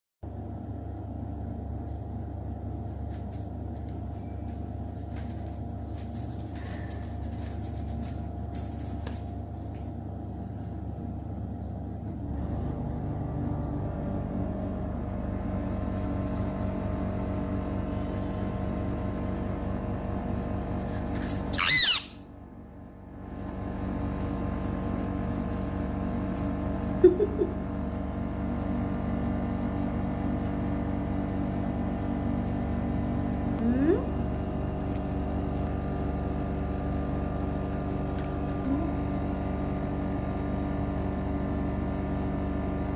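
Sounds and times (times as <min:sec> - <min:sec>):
low mechanical hum: 0:00.2 - 0:42.9
parrot squawk: 0:21.5 - 0:22.2.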